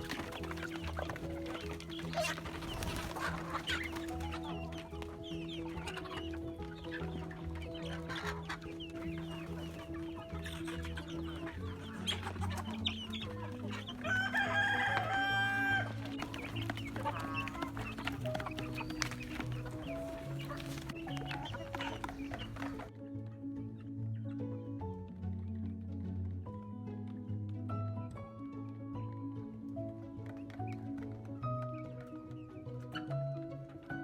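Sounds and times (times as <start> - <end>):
chickens clucking: 0.0 - 26.0, 28.4 - 34.0
background music: 0.0 - 34.0
rooster crowing: 14.0 - 16.0.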